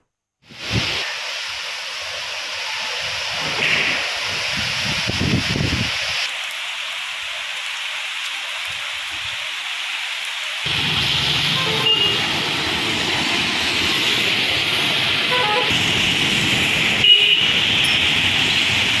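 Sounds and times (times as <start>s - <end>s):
heavy rain hissing: 0.4s - 19.0s
traffic passing through water: 10.6s - 19.0s
car horn toots: 11.6s - 12.2s, 15.3s - 15.8s, 17.0s - 17.6s.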